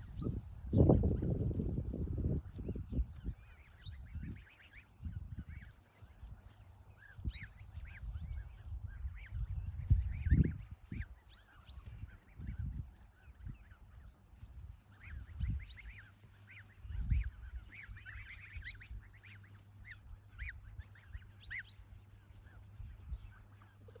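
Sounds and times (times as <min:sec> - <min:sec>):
geese honking: 0:13.7 - 0:21.8.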